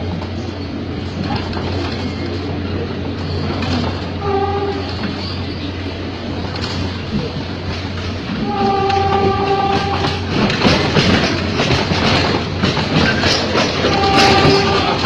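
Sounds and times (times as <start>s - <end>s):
electric train running: 0.0s - 15.0s
wheels clacking over rail joints: 0.0s - 15.0s
steady horn-like tone: 4.2s - 4.9s, 8.4s - 10.1s.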